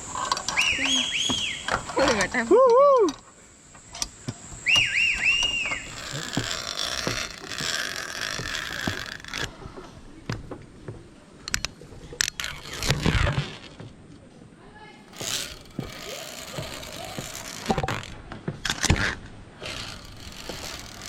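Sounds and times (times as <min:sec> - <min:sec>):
whistled notes: 0:00.5 - 0:01.7, 0:04.6 - 0:06.0
zip line trolley whirring on cable: 0:04.7 - 0:09.8, 0:12.4 - 0:13.7, 0:15.1 - 0:21.0.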